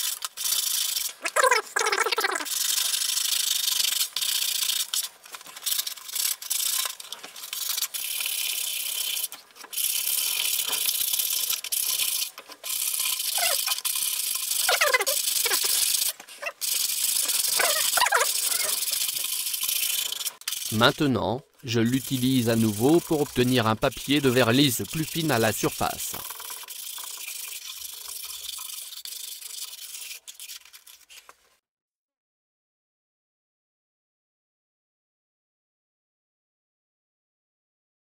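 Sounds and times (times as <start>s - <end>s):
sandpaper rubbing strokes: 0.0s - 31.4s.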